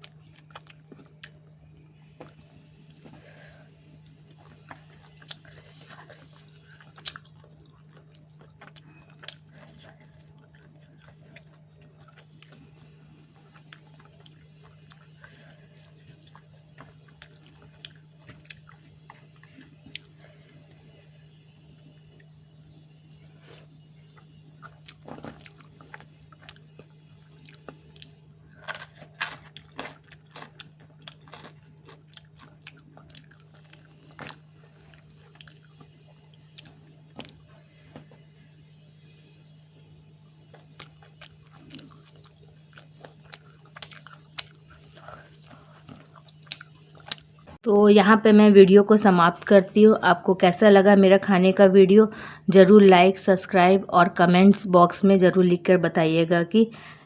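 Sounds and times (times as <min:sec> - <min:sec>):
chewing and biting food: 0:00.0 - 0:03.3, 0:04.0 - 0:21.0, 0:23.4 - 0:38.2, 0:40.4 - 0:47.6
steady low hum: 0:00.0 - 0:57.0.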